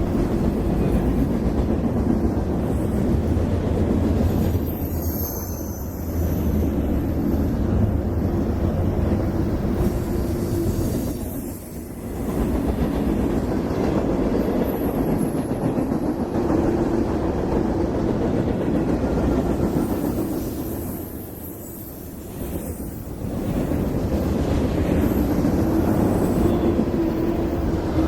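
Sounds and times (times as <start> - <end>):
freight train rolling past: 0.0 - 28.0.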